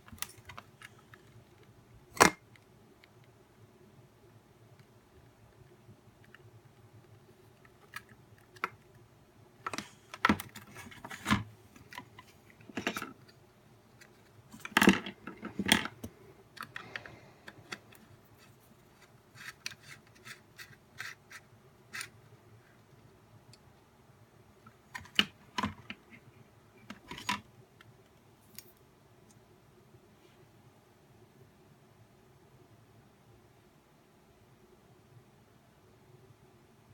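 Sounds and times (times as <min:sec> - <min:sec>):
clicks and knocks of parts handled: 0:09.6 - 0:13.4, 0:14.0 - 0:21.4.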